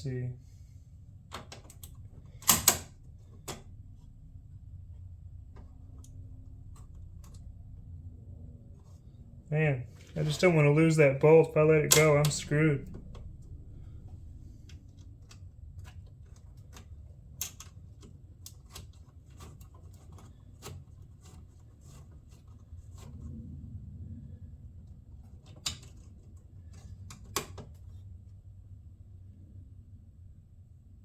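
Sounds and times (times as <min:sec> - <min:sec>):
low rumble: 0:03.0 - 0:15.9, 0:23.1 - 0:25.4.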